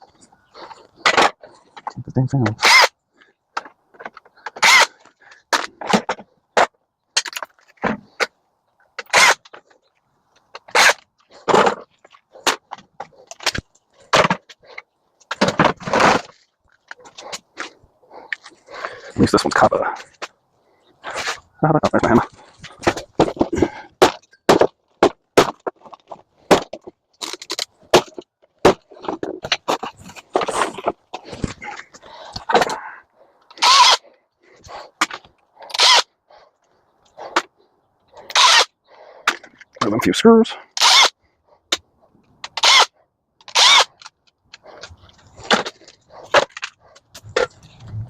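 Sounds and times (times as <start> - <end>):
crunching and cracking: 22.2 - 32.8.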